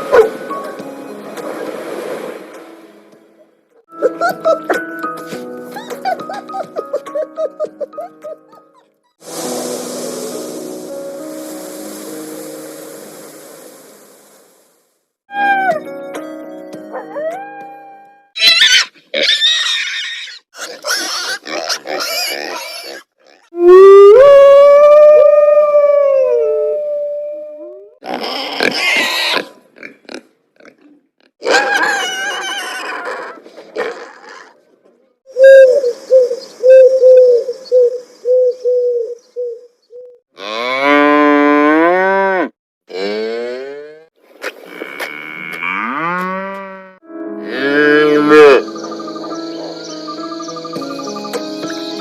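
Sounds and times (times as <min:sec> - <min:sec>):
farm animals calling: 0:47.4 - 0:51.4.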